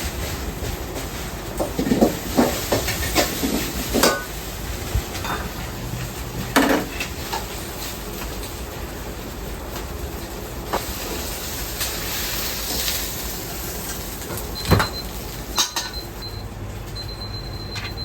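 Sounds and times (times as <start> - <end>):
bowls and utensils clattering: 1.6 - 4.4, 5.1 - 5.8, 15.6 - 16.1.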